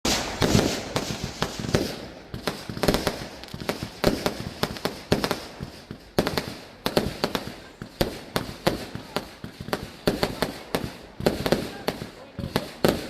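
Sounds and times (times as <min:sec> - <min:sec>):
fireworks banging: 0:00.0 - 0:13.0.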